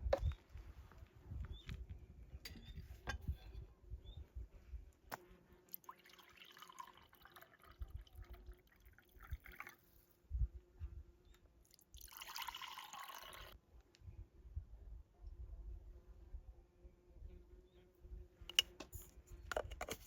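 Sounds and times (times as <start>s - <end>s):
liquid pouring into container: 5.7s - 10.0s, 11.7s - 13.6s.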